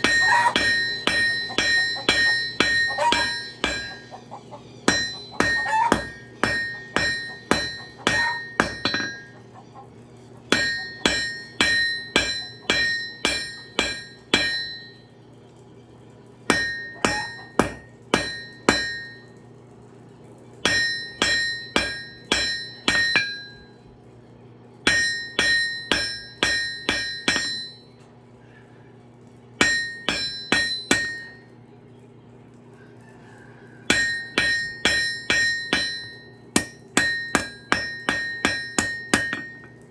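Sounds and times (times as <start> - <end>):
hammer striking metal on anvil: 0.0 - 9.5, 10.5 - 15.1, 16.5 - 19.3, 20.6 - 23.7, 24.8 - 27.9, 29.6 - 31.5, 33.9 - 39.9
steady low hum: 0.0 - 39.9.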